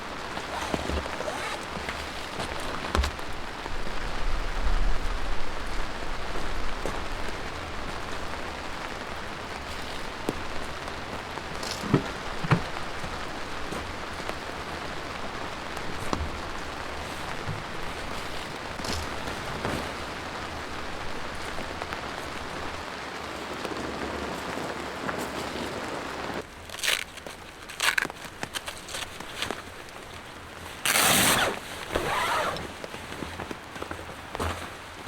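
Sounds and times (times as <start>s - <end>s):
steady rain: 0.0s - 35.0s.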